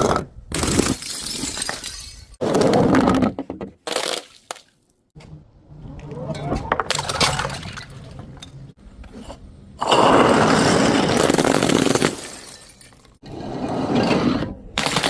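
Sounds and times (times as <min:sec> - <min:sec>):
glass bottles smashing: 0:00.7 - 0:02.4, 0:11.1 - 0:13.2.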